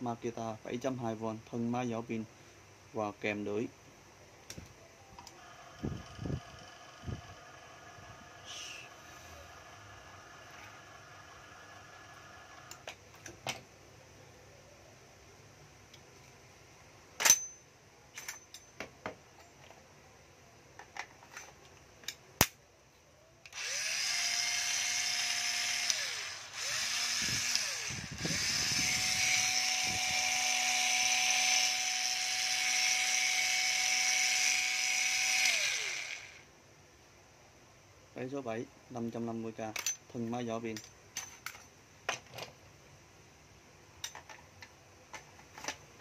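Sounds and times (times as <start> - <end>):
cordless drill motor whining: 5.2 - 12.8, 23.5 - 36.5.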